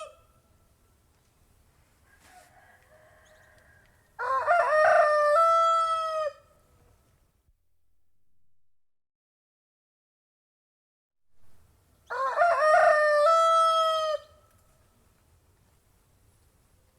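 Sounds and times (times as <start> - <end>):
rooster crowing: 0.0 - 0.3, 2.0 - 6.5, 12.1 - 14.4.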